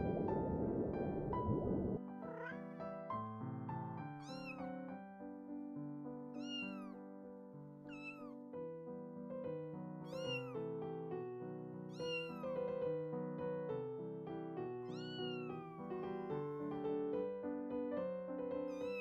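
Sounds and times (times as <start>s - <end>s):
kitten meowing: 2.2s - 2.8s, 4.2s - 4.8s, 6.4s - 7.0s, 7.8s - 8.4s, 10.0s - 10.6s, 11.8s - 12.7s, 14.8s - 16.4s, 18.7s - 19.0s.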